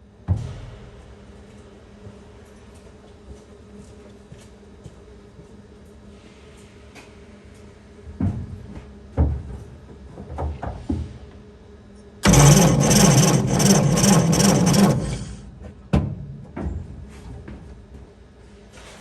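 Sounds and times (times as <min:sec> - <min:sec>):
sharp clicks: 0:12.2 - 0:15.4
starter motor cranking engine: 0:12.2 - 0:15.8.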